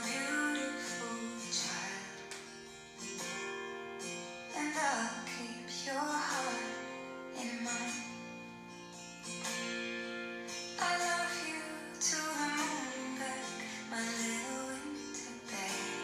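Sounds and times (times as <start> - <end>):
person singing: 0.0 - 2.5, 4.5 - 8.2, 10.8 - 16.0
plucked acoustic guitar: 0.0 - 16.0.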